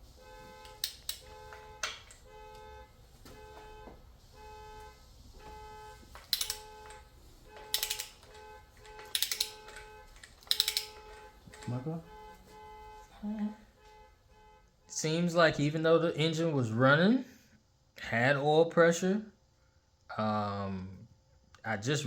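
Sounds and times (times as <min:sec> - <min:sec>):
ratchet wrench clicking: 0:06.2 - 0:07.0, 0:07.7 - 0:08.3, 0:08.9 - 0:11.7.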